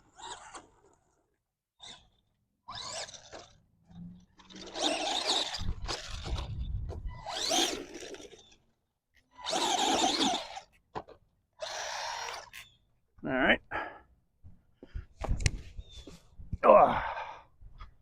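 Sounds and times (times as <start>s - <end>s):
tyres churning dirt: 0.0s - 12.9s
electric motor whining: 1.8s - 8.6s, 9.3s - 10.8s.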